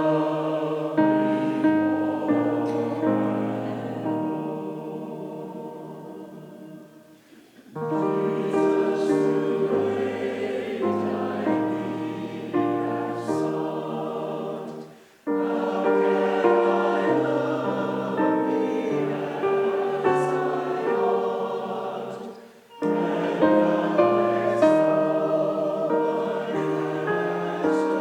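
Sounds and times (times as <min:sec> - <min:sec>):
group singing a hymn: 0:00.0 - 0:28.0.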